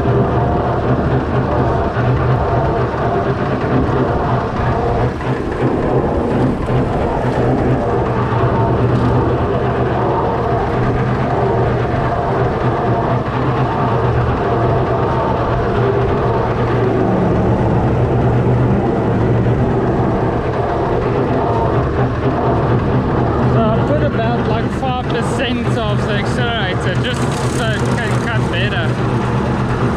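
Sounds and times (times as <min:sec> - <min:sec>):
tractor diesel engine under load: 0:00.0 - 0:29.9
slasher cutting grass: 0:25.6 - 0:29.9.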